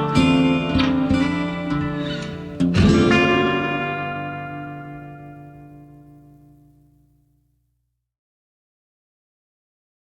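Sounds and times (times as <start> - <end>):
strummed guitar chords: 0.0 - 7.4.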